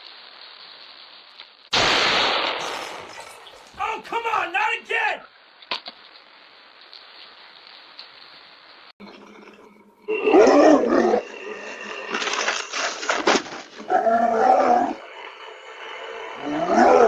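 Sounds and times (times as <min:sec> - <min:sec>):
animal growling and calling: 0:09.1 - 0:17.0.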